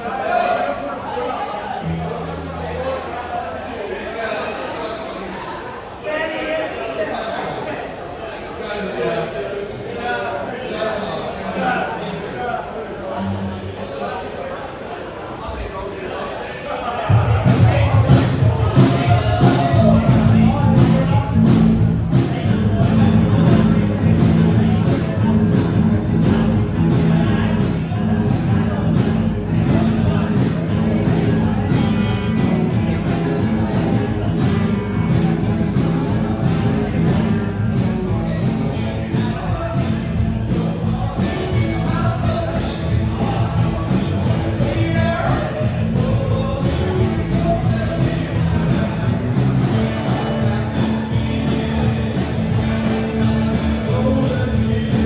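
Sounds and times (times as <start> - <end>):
live rock band playing: 17.1 - 55.0
person singing: 17.1 - 55.0.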